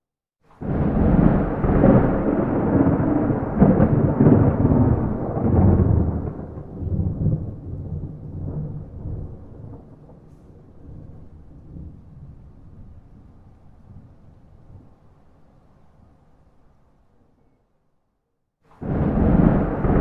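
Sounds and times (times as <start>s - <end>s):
thunder clap and rumble: 0.6s - 15.0s, 18.8s - 20.0s.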